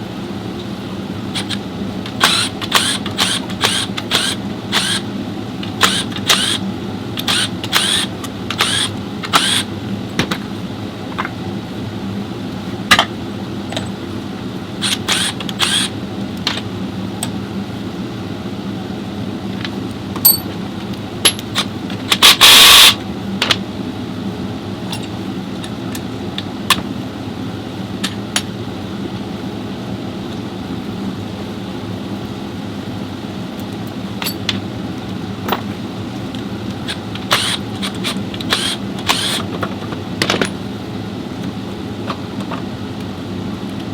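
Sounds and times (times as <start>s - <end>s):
low workshop hum: 0.0s - 43.9s
metal tools clicking and clanking: 20.2s - 20.5s, 34.2s - 34.6s.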